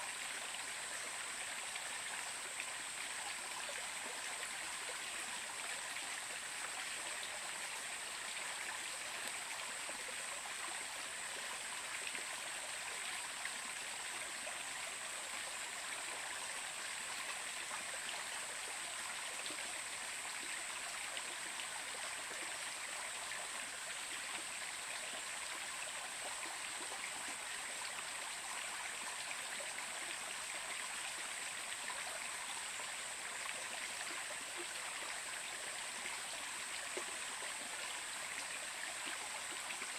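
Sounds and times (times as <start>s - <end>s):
stream running: 0.0s - 39.9s.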